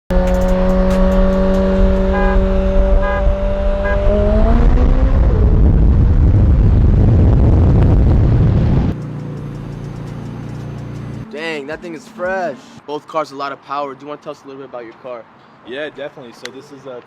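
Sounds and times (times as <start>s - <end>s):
car engine running: 0.1s - 5.0s, 6.0s - 11.3s
car accelerating hard: 0.1s - 11.2s.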